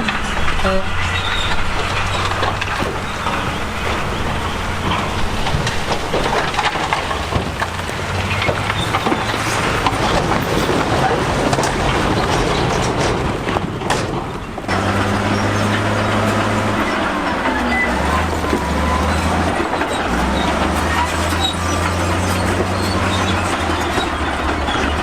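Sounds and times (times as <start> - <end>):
bulldozer engine humming: 0.0 - 25.0
tracks and rocks clanking: 0.0 - 25.0.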